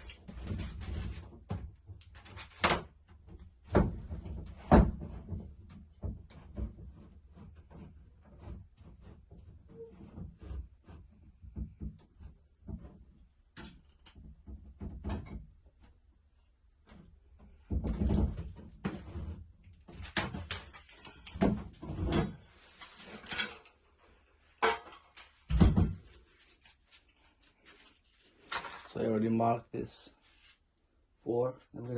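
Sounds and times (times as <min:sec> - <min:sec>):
tools knocking and scraping: 0:24.6 - 0:26.2.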